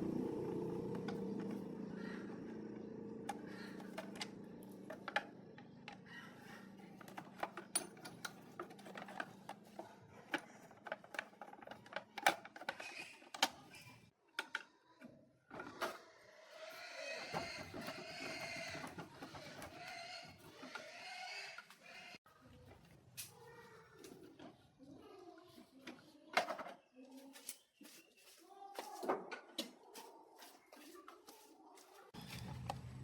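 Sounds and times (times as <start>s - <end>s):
low hum: 0.0s - 6.7s.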